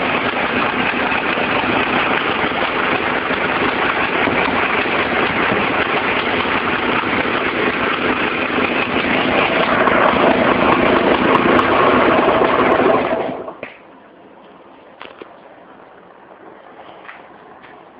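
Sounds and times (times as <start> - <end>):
two-stroke engine running: 0.0 - 13.6.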